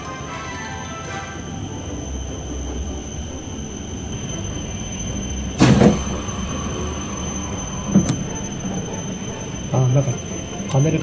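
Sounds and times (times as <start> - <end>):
thin high whine: 0.0 - 11.0
train rolling rumble: 0.0 - 11.0
loud clunk: 5.6 - 6.1.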